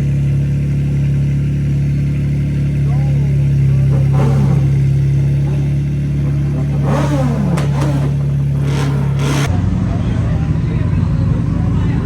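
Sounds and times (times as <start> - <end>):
car engines revving: 0.0 - 12.0
low engine drone: 0.0 - 12.0.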